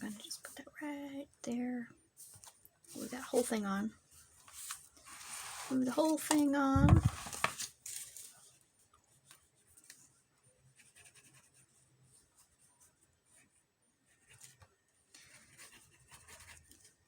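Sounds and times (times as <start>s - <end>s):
paper rubbing and handling: 4.4s - 8.4s.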